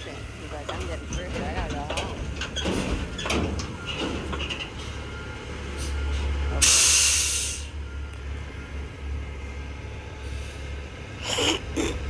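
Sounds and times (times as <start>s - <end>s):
low engine rumble: 0.0s - 12.0s
air brakes hissing: 5.8s - 7.8s, 10.2s - 11.6s.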